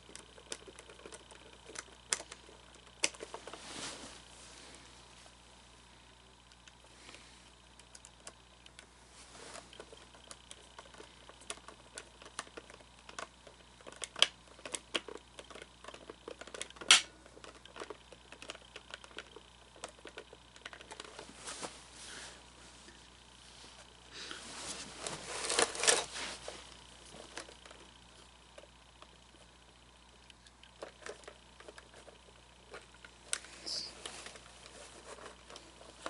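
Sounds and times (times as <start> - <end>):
plastic parts and screws clicking: 0.0 - 3.6, 9.6 - 21.2, 30.2 - 36.0.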